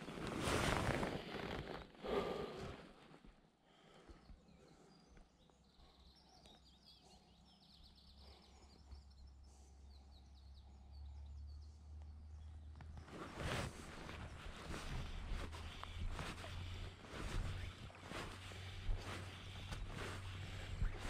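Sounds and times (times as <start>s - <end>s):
small bird chirping: 4.2s - 21.0s
wind rumble on microphone: 13.0s - 21.0s.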